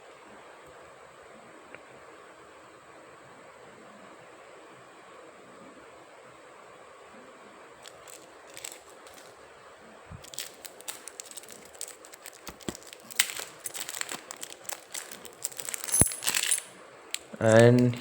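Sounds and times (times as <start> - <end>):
packaging crinkling: 7.8 - 9.4, 10.2 - 18.0.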